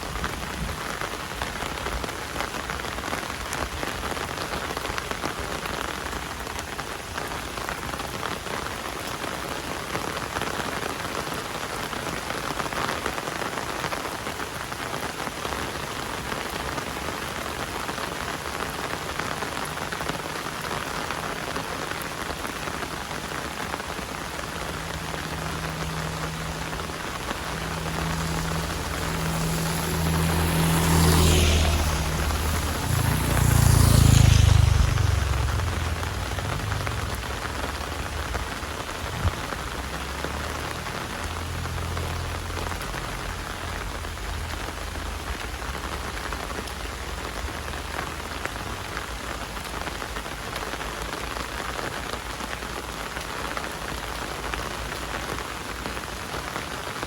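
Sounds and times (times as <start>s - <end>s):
heavy rain: 0.0s - 57.0s
low engine hum: 22.2s - 49.5s.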